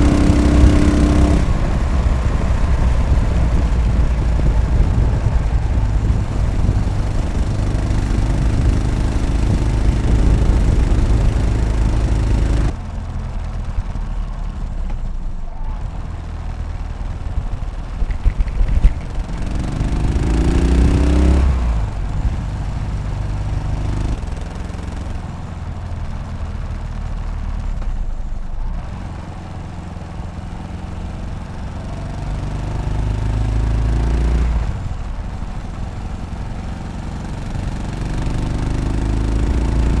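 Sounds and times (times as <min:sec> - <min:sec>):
motorcycle engine revving: 0:00.0 - 0:12.8, 0:15.8 - 0:25.2, 0:31.2 - 0:40.0.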